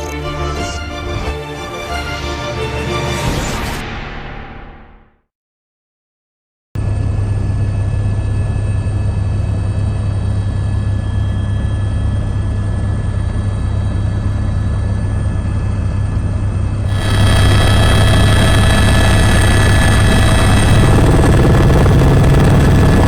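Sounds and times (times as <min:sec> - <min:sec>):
helicopter engines and rotors: 0:16.9 - 0:23.0.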